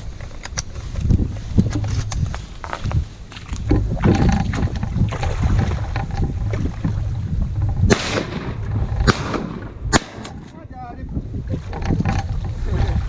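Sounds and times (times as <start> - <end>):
crackles and rustles: 0.0 - 9.3
wind buffeting microphone: 0.0 - 13.0
sharp loud burst: 7.9 - 10.4.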